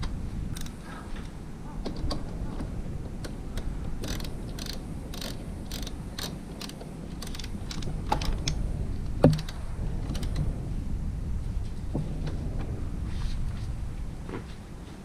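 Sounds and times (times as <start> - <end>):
small mechanical clicks and taps: 0.0 - 0.8, 3.1 - 8.6.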